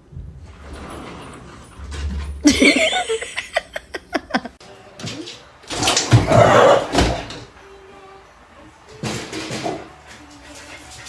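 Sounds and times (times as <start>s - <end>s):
person laughing: 2.4s - 4.6s.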